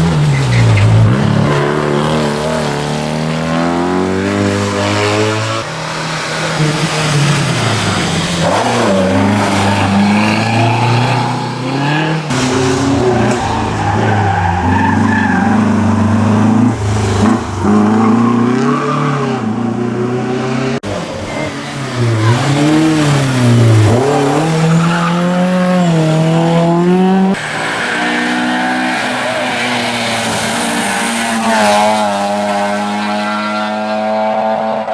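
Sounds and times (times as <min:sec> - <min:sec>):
racing car engines revving: 0:00.0 - 0:34.9
tyre squeal: 0:07.4 - 0:12.2, 0:21.2 - 0:26.1.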